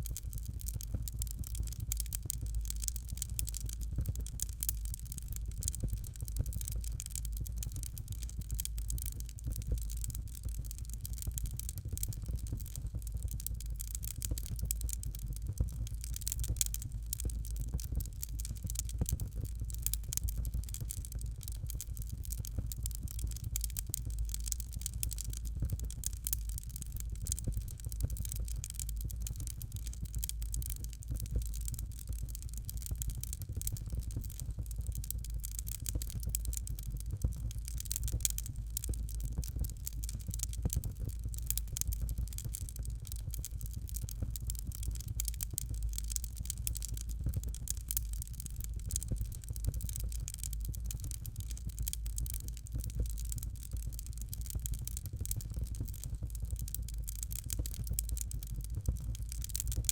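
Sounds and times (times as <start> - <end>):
fireplace fire crackling: 0.0 - 59.9.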